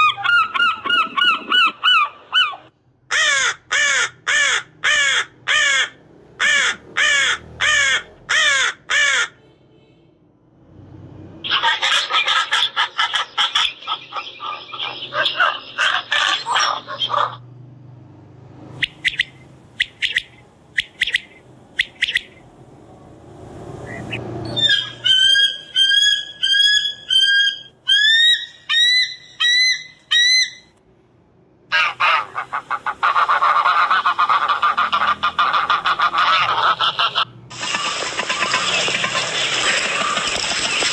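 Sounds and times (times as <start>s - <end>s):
pelican rapid calls: 0.0s - 2.7s, 31.7s - 40.9s
geese honking: 31.8s - 40.7s.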